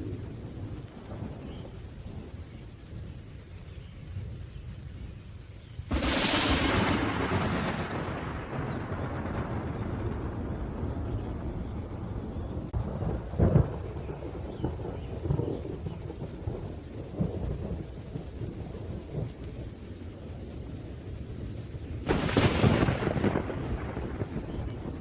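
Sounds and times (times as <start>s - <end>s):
steady rain: 0.0s - 25.0s
sharp thunderclap: 5.9s - 16.5s, 22.0s - 25.0s
rolling thunder: 5.9s - 25.0s.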